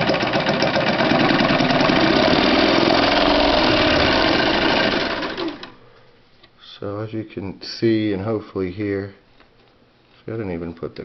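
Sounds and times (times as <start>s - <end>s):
sewing machine stitching fabric: 0.0s - 5.8s.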